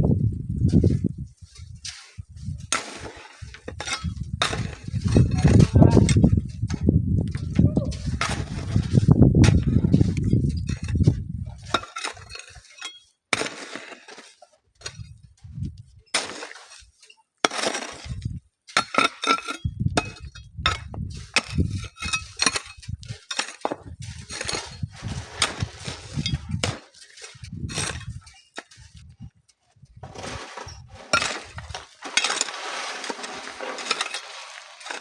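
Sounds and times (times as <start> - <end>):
wind rumble on microphone: 0.0 - 2.8, 3.4 - 11.8, 14.9 - 16.0, 18.0 - 18.4, 19.6 - 23.2, 23.8 - 26.8, 27.4 - 31.8
sand and gravel crunching: 0.0 - 35.0.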